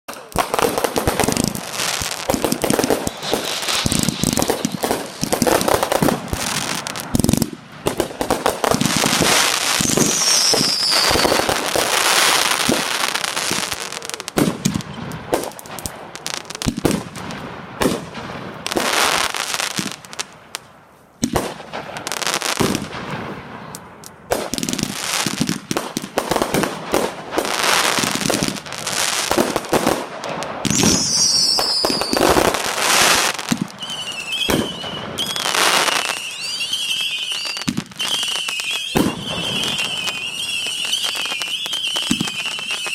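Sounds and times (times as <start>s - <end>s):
falling firework whistle: 0.1s - 15.5s, 30.6s - 42.9s
fireworks bangs and crackling: 0.1s - 42.9s.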